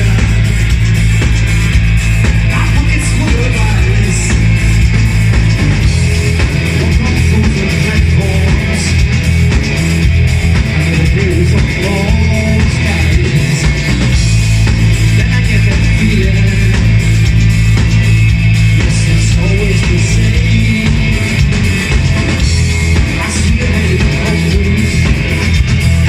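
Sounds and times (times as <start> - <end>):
bass line: 0.0 - 26.0
electric guitar: 0.0 - 26.0
rock band playing live: 0.0 - 26.0
person singing: 6.7 - 9.1, 10.8 - 13.8, 18.8 - 21.7, 22.9 - 25.9.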